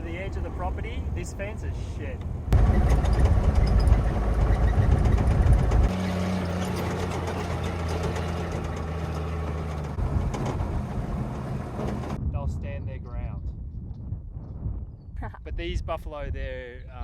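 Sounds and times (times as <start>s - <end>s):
vehicle engine running: 2.4s - 12.2s.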